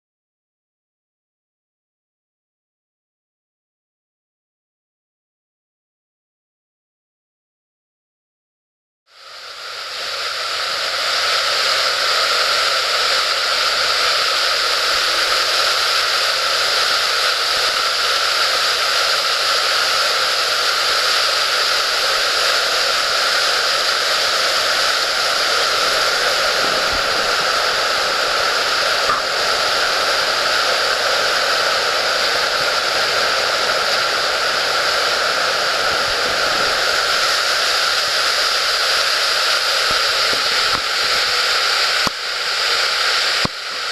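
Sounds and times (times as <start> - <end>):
loud rush of floodwater: 9.4 - 43.9.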